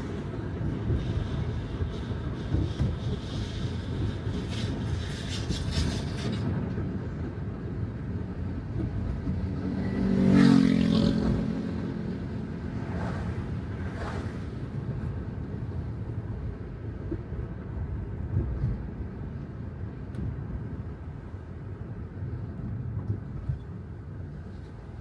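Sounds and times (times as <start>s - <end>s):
car tyres on a wet road: 0.0s - 16.7s
passing vehicle engine: 9.3s - 14.7s.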